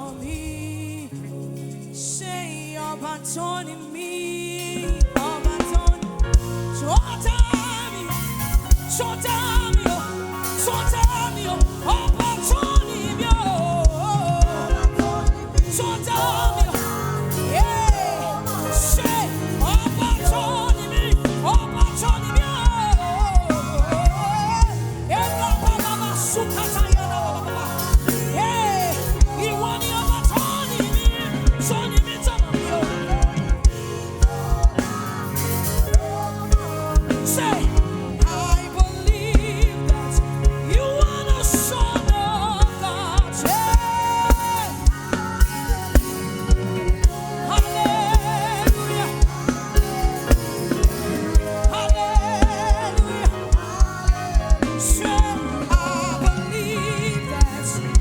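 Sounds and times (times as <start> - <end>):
gospel band playing: 0.0 - 58.0.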